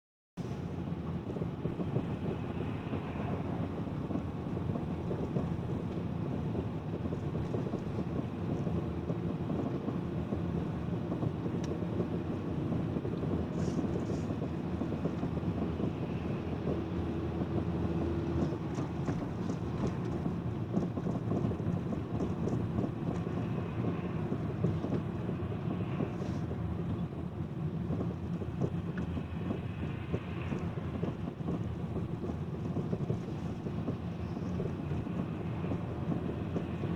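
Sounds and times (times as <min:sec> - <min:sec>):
road and cabin noise: 0:00.4 - 0:36.9
car suspension knocking: 0:12.3 - 0:25.3.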